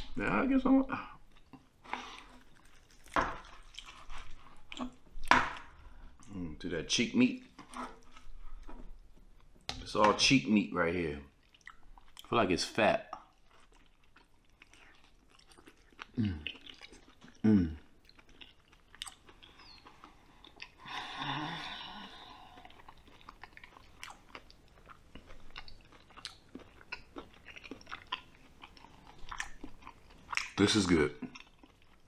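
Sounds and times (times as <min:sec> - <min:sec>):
chewing and mouth smacks: 0:01.3 - 0:06.3, 0:11.3 - 0:12.3, 0:13.1 - 0:20.9, 0:22.1 - 0:32.0
person humming: 0:17.4 - 0:17.8
breathy sound: 0:20.8 - 0:22.8.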